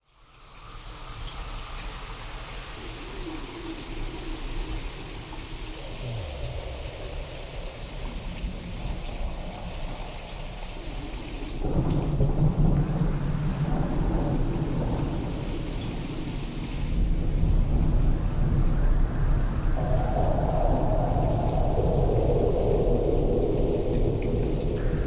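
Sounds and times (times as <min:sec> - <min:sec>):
steady rain: 0:00.0 - 0:25.0
rolling thunder: 0:04.5 - 0:25.0.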